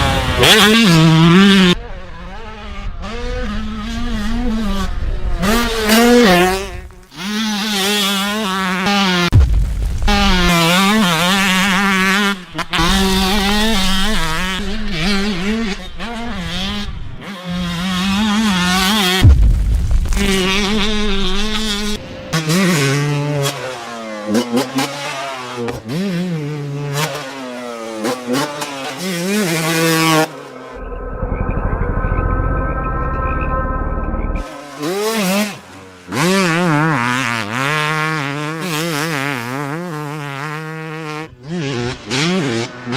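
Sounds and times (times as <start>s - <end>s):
dirt bike engines revving: 0.0s - 9.3s, 10.0s - 19.4s, 20.0s - 42.9s.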